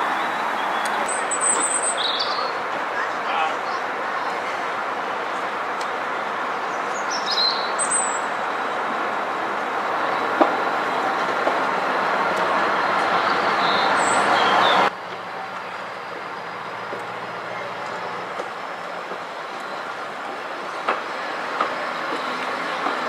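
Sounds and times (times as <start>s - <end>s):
birds chirping: 0.0s - 2.5s
train running along track: 0.0s - 23.0s.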